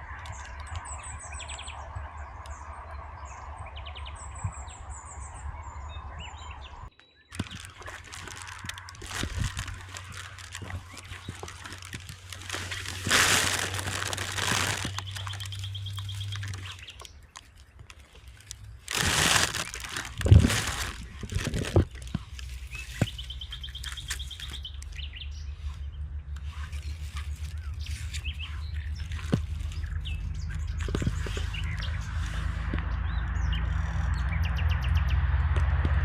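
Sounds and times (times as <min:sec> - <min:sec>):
rustling noise: 0:07.3 - 0:25.0, 0:25.6 - 0:34.1.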